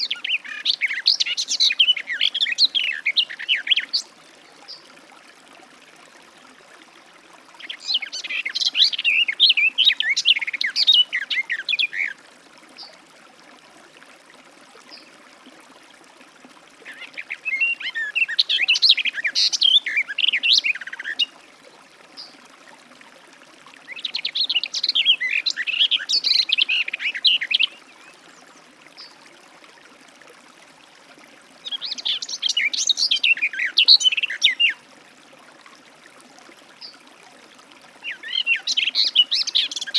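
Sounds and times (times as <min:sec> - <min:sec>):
garden warbler singing: 0:07.6 - 0:12.2.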